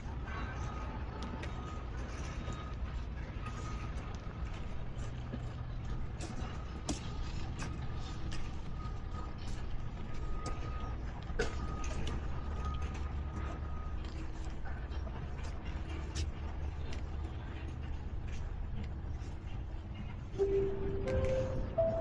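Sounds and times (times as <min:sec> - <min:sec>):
steady low rumble: 0:16.4 - 0:22.0
faint high hum: 0:20.3 - 0:22.0.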